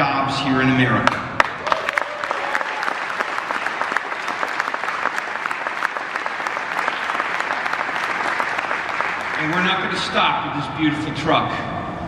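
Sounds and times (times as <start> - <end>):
cheers: 1.4 - 9.8
audience applauding: 1.4 - 10.2.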